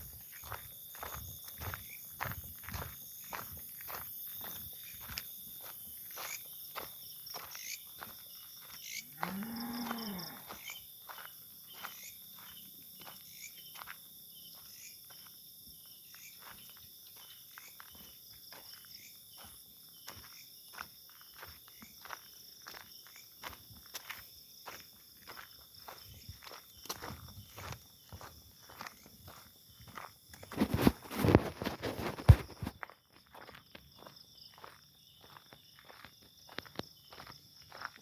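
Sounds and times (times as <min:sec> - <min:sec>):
insects buzzing: 0:00.0 - 0:19.2.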